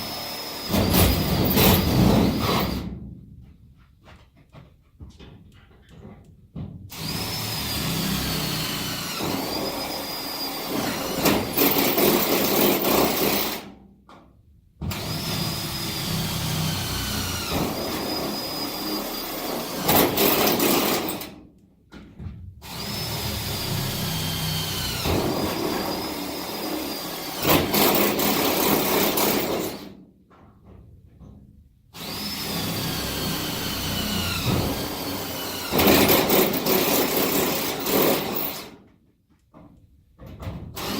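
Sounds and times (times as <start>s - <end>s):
cordless drill whining: 0.0s - 2.8s, 7.0s - 13.6s, 14.9s - 21.2s, 22.6s - 29.8s, 32.0s - 38.7s.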